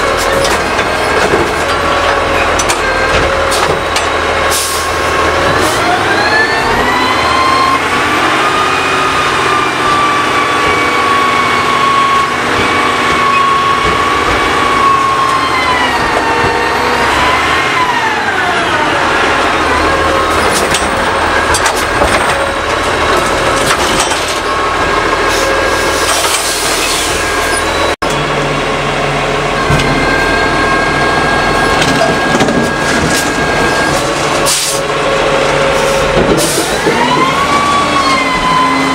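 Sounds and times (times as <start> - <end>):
hydraulic pump and engine whine: 0.0 - 38.9
trash cracking and crunching: 31.6 - 34.5.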